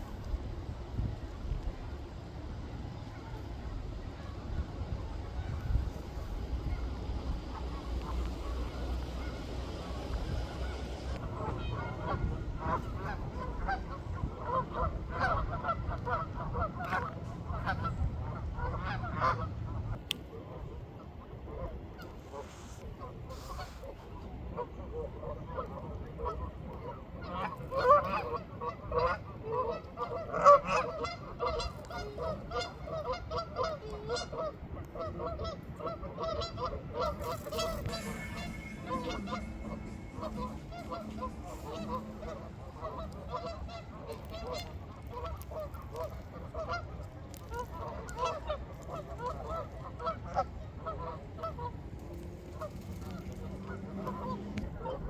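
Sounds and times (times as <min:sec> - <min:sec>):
low rumble: 0:00.0 - 0:20.0, 0:37.0 - 0:45.5
waterfowl quacking and honking: 0:05.2 - 0:19.6, 0:24.6 - 0:51.8.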